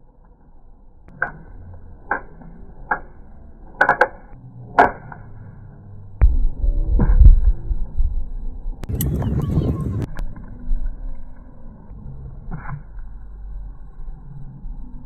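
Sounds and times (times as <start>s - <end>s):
loud low rumble: 6.0s - 15.0s.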